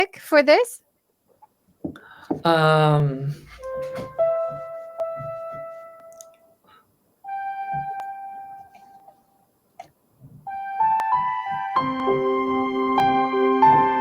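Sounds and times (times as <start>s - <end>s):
slow sparse keyboard music: 3.3s - 9.5s, 10.3s - 14.0s.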